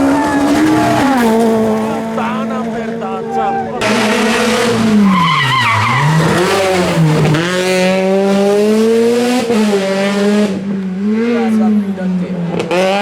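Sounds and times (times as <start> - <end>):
tyres squealing: 0.0 - 7.8
rally car engine revving: 0.0 - 13.0.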